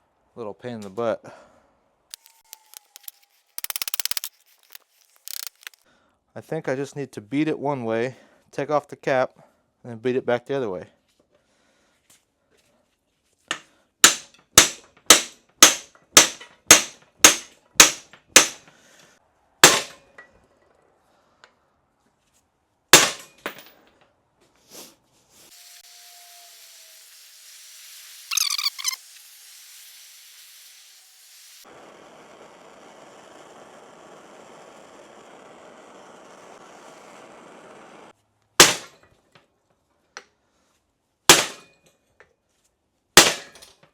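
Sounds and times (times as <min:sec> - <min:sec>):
hammer striking metal: 0:13.5 - 0:18.7, 0:19.6 - 0:20.0, 0:23.0 - 0:23.6
steady hiss: 0:25.4 - 0:35.1
high squeal: 0:25.5 - 0:29.3.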